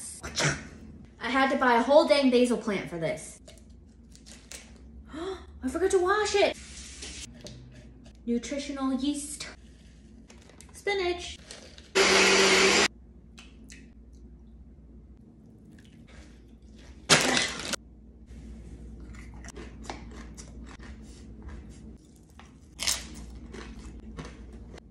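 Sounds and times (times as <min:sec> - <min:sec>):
blender whirring: 0:12.0 - 0:12.9
crunchy chewing of salad: 0:18.8 - 0:24.9.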